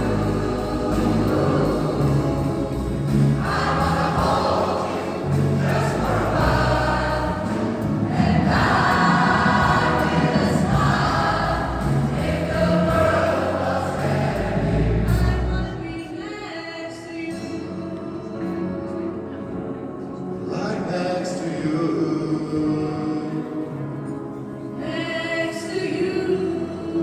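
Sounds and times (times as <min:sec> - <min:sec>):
choir singing: 0:00.0 - 0:17.0, 0:20.4 - 0:27.0.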